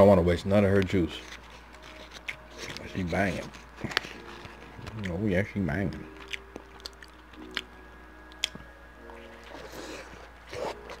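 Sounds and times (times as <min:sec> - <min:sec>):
wet chewing: 0:00.8 - 0:11.0
lip and tongue clicks: 0:06.0 - 0:07.7, 0:08.3 - 0:11.0.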